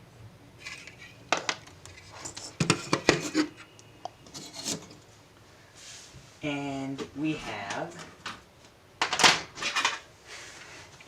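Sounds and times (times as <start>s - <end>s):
parts scraping on surface: 0.6s - 5.0s.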